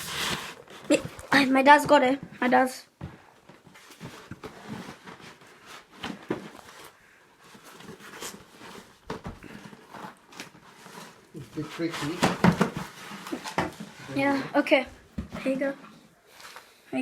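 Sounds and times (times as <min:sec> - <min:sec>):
packaging rustles and knocks: 0:11.8 - 0:14.0.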